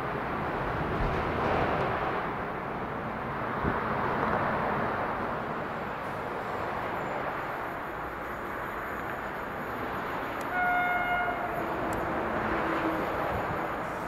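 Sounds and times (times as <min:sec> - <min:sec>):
train running on track: 0:00.0 - 0:14.0
two-tone train horn: 0:10.4 - 0:12.0.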